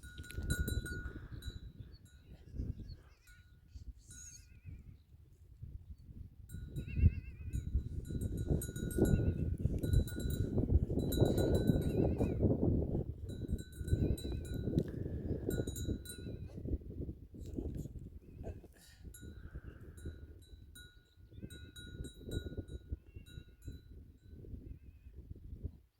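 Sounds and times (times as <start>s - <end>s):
goat neck bells ringing: 0.0s - 4.5s, 6.5s - 12.5s, 13.2s - 16.6s, 19.2s - 24.4s.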